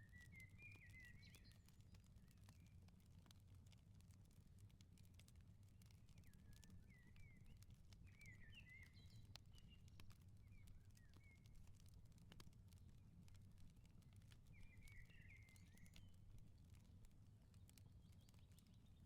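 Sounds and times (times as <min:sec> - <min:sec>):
small birds chirping: 0:00.0 - 0:02.6, 0:06.2 - 0:11.9, 0:14.5 - 0:16.8, 0:17.5 - 0:19.0
wood fire crackling: 0:01.7 - 0:08.1, 0:09.1 - 0:19.0.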